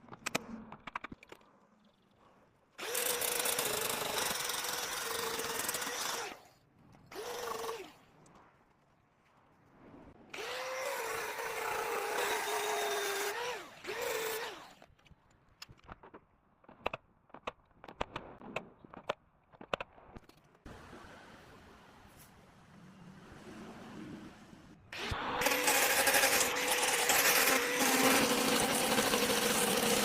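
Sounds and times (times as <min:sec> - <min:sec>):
power tool whining: 0:07.1 - 0:08.0, 0:10.4 - 0:14.9, 0:25.0 - 0:30.0.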